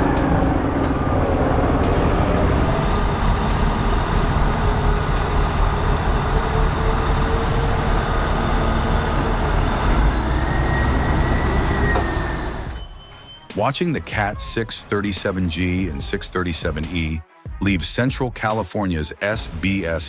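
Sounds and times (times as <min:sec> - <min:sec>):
heavy vehicle engine under load: 0:00.0 - 0:12.9
road noise: 0:00.0 - 0:16.9.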